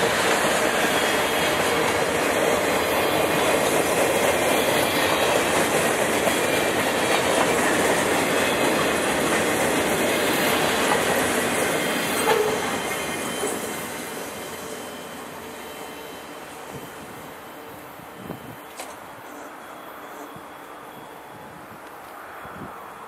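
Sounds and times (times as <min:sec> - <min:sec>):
train wheels clattering: 0:00.0 - 0:17.0.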